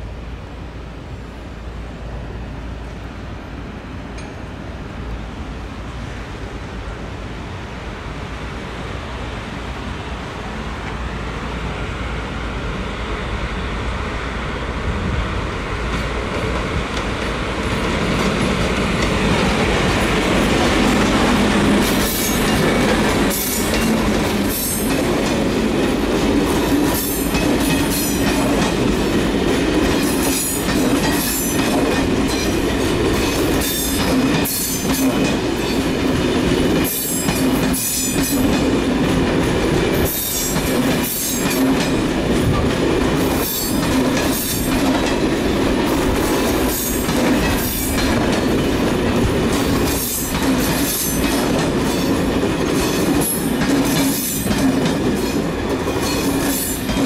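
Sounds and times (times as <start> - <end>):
train rolling rumble: 0.0 - 57.0
train wheels clacking on rails: 15.7 - 57.0.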